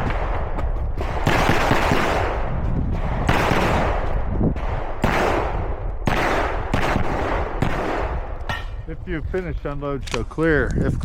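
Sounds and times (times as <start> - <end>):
pistol shots echoing: 0.0 - 8.8.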